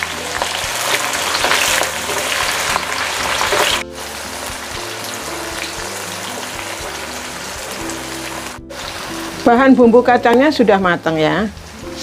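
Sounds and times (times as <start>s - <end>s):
background music: 0.0s - 12.0s
sizzling in a wok: 0.0s - 12.0s.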